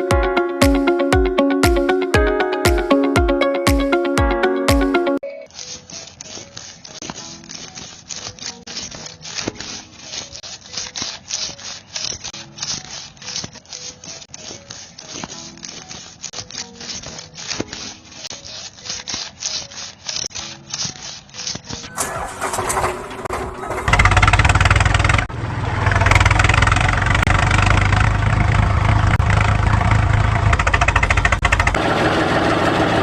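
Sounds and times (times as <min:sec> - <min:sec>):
hand tool scraping: 0:05.5 - 0:24.4.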